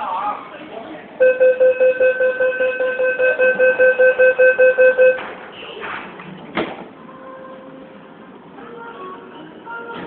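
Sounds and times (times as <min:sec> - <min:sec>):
rapid electronic door beeping: 0:01.2 - 0:05.3.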